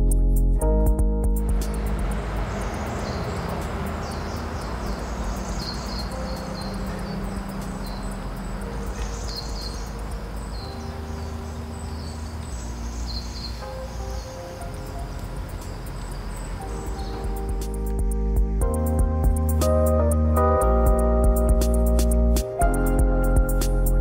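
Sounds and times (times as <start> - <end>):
low hum: 0.2 - 10.8
birds chirping: 1.4 - 20.8.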